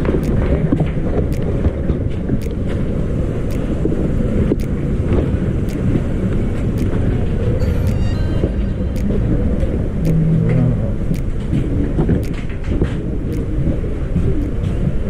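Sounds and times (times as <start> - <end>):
light rhythmic clicks: 0.0 - 15.0.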